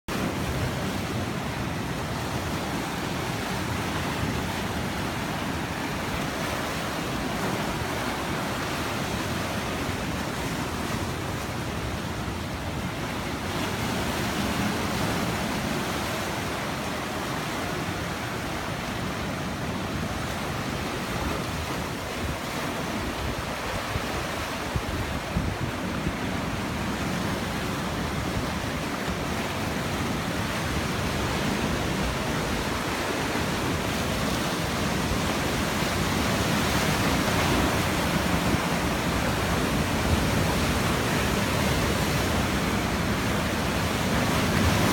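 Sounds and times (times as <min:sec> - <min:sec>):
wind on microphone: 0:00.2 - 0:44.9
surf breaking against rocks: 0:12.6 - 0:44.9.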